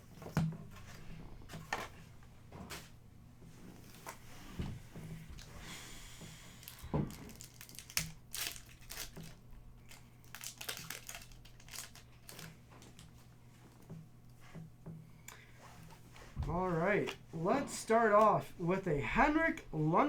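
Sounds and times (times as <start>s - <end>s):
wrappers tearing and crinkling: 6.5s - 13.2s.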